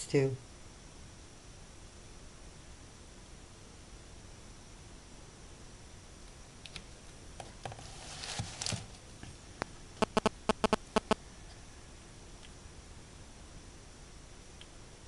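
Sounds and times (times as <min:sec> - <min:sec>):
rustle of craft supplies: 0:06.8 - 0:09.5.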